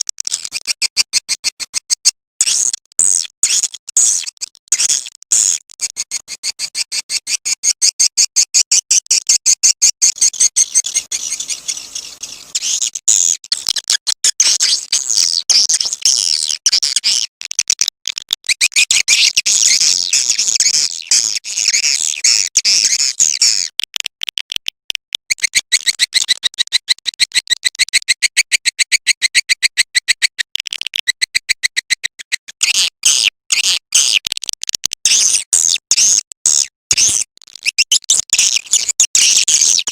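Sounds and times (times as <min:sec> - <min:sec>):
rattling bird chirps: 0:10.2 - 0:13.3.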